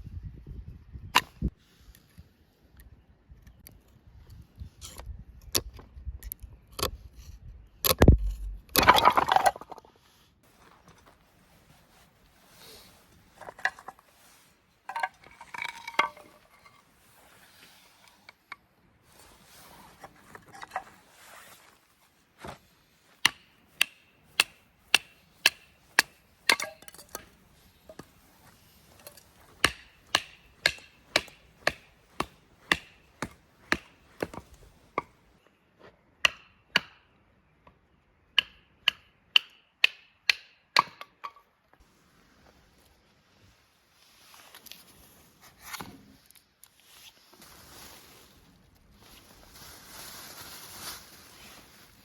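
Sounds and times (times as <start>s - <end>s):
blade chopping on wood: 23.2s - 27.3s, 29.6s - 34.4s.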